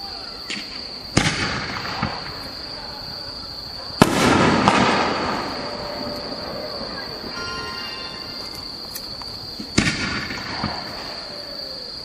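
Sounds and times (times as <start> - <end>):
echoing crackle: 0.3 - 11.8
firework shells bursting: 0.5 - 2.7, 4.0 - 11.3.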